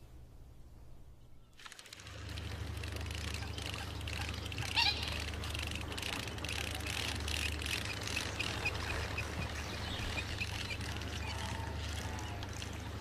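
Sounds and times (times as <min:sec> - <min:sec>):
river rumble: 0:01.6 - 0:13.0.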